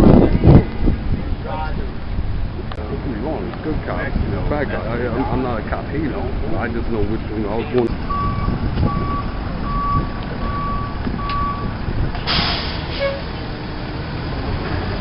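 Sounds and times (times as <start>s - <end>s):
engine running rumble: 0.0s - 15.0s
truck reversing alarm beeping: 7.9s - 13.4s
short sharp hiss: 12.3s - 13.2s.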